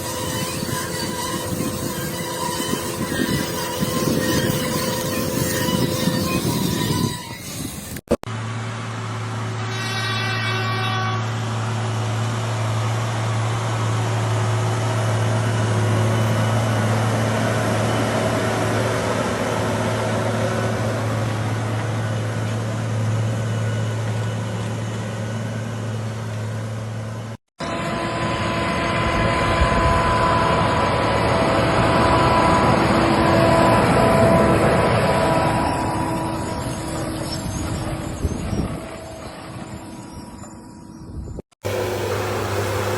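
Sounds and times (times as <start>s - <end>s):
heavy machinery engine humming: 11.3s - 40.8s, 41.6s - 42.9s
machine running with high whine: 41.6s - 42.9s.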